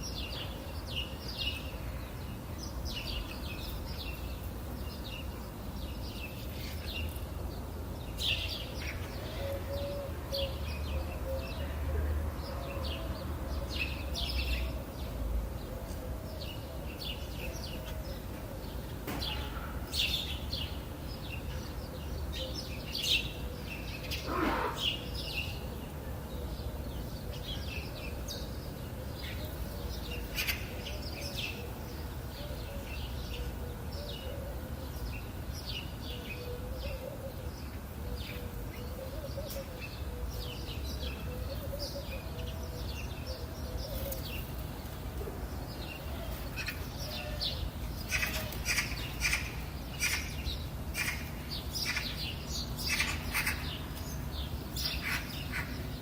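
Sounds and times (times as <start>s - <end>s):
songbirds chirping and twittering: 0.0s - 56.0s
lower longer bird call: 24.2s - 25.2s.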